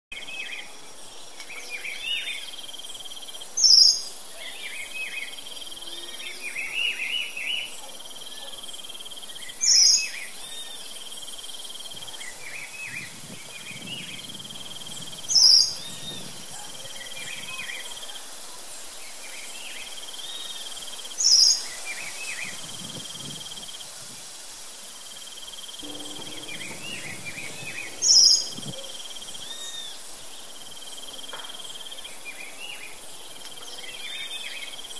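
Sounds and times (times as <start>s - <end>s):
insect trill: 1.1s - 34.9s
birds chirping: 25.7s - 31.0s.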